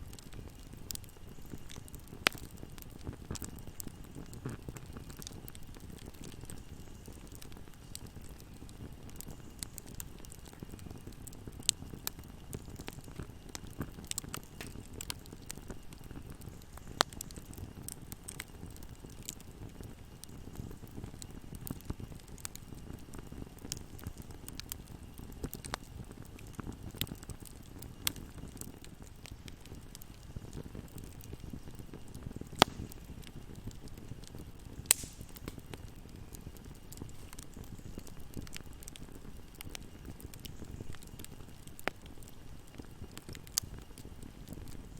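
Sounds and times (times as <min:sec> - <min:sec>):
fire crackling and popping: 0:00.0 - 0:44.9
low rumble of flames: 0:00.0 - 0:44.9.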